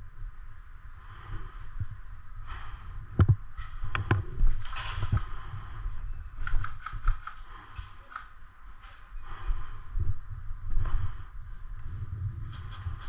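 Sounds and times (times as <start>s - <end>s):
light clicks: 6.4s - 9.0s.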